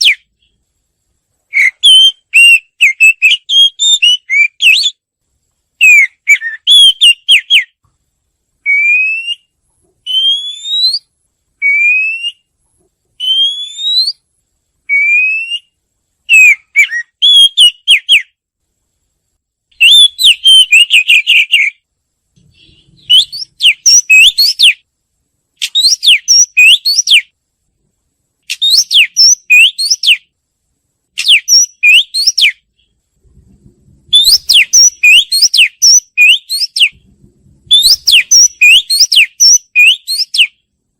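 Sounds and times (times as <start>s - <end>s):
bird singing loudly: 0.0s - 0.3s, 1.5s - 5.0s, 5.8s - 7.8s, 8.6s - 9.5s, 10.1s - 12.5s, 13.2s - 14.2s, 14.9s - 18.4s, 19.8s - 21.8s, 22.5s - 24.8s, 25.6s - 27.3s, 28.5s - 30.2s, 31.2s - 32.9s, 34.1s - 37.0s, 37.7s - 40.6s.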